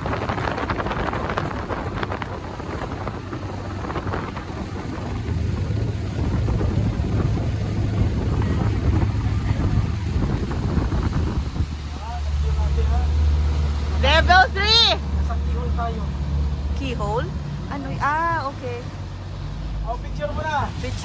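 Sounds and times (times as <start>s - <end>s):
wind buffeting microphone: 0.0s - 15.2s
boat engine rumble: 0.0s - 21.0s.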